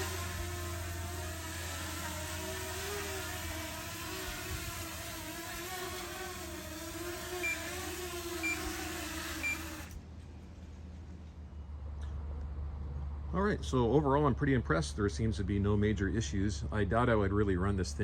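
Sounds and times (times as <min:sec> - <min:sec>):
drone propellers whirring: 0:00.0 - 0:10.0.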